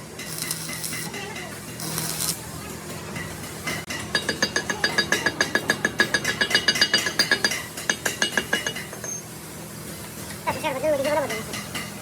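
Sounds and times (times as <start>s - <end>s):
rapid metal tapping: 3.1s - 9.1s.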